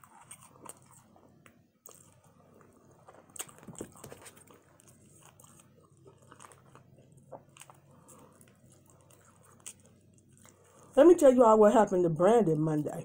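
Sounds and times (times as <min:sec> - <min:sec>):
close chewing sounds: 0:00.0 - 0:13.0.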